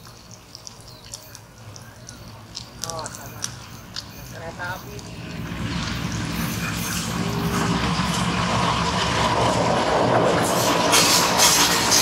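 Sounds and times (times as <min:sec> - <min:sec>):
locomotive engine running: 0:01.6 - 0:12.0
train wheels rumbling on rails: 0:04.1 - 0:12.0.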